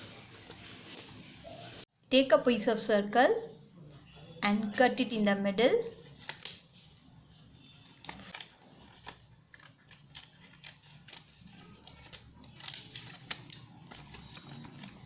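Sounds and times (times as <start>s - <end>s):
scissors snipping paper: 7.7s - 15.0s.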